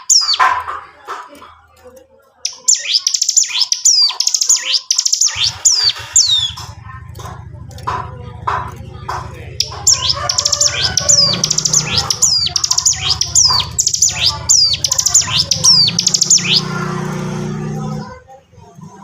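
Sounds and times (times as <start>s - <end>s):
bird singing fast song: 0.0s - 0.4s, 2.4s - 6.8s, 9.6s - 18.0s.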